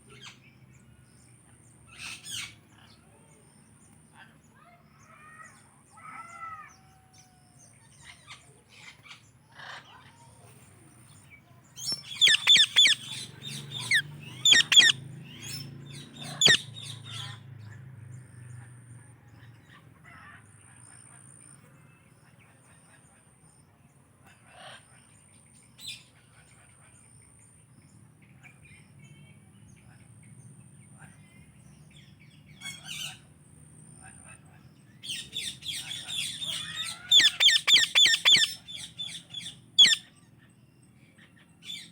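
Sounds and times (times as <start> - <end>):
parakeets screeching: 11.8 - 17.4, 35.1 - 40.0
soft parakeet chirps: 11.8 - 17.4, 35.4 - 40.0.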